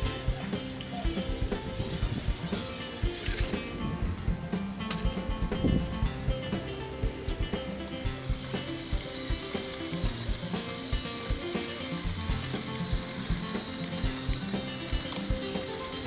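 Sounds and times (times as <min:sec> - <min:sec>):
toy motors whirring with ratcheting: 0:00.0 - 0:03.6, 0:08.0 - 0:16.0
background music: 0:00.0 - 0:16.0.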